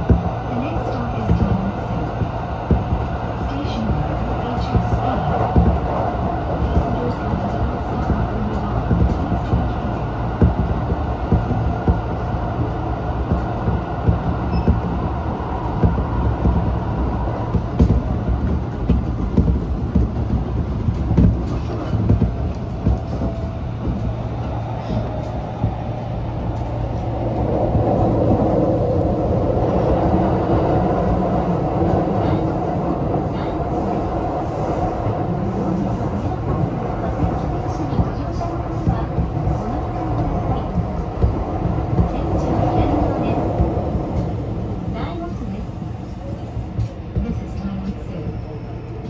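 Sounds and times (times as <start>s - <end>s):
electric train rumbling: 0.0s - 49.0s.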